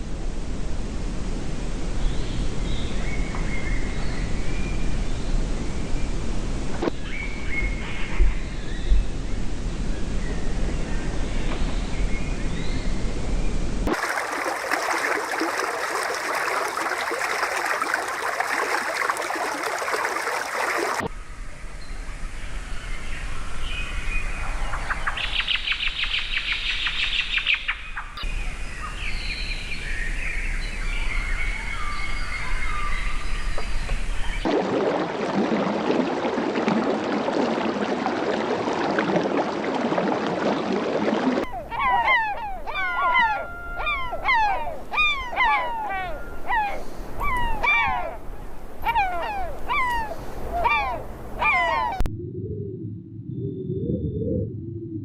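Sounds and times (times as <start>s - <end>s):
birds chirping and calling: 41.4s - 48.2s, 48.8s - 52.0s.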